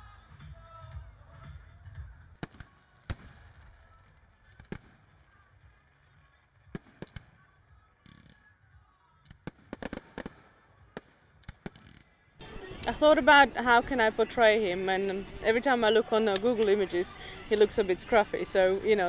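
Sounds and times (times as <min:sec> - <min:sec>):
fireworks bangs: 0:02.4 - 0:08.5, 0:09.2 - 0:12.1
fireworks popping: 0:02.4 - 0:12.1.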